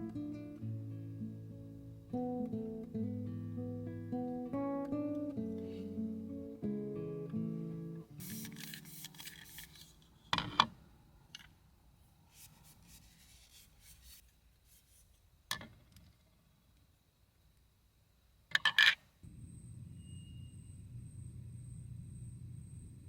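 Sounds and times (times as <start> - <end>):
soft rubbing and rustling: 8.2 - 10.3, 12.2 - 15.2.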